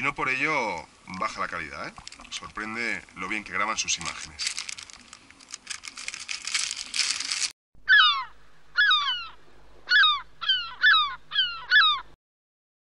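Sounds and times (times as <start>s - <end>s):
plastic packaging crinkling: 2.0s - 7.6s
short falling bird calls: 7.8s - 12.1s.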